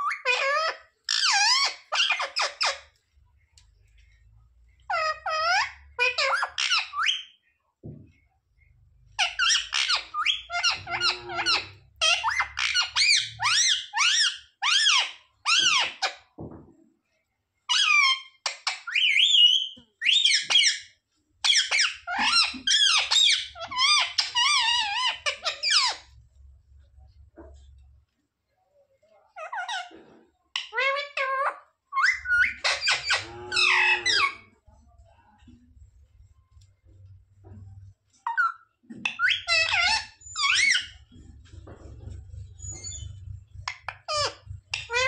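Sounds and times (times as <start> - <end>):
parrot chirping and squawking: 0.0 - 3.0, 4.8 - 7.4, 9.1 - 16.2, 17.7 - 26.5, 29.4 - 34.6, 37.0 - 45.0.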